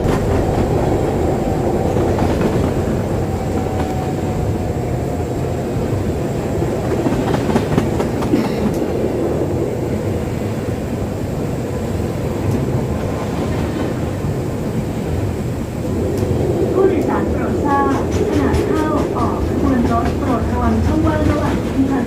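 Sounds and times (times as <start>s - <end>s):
monorail train rumbling: 0.0s - 22.0s.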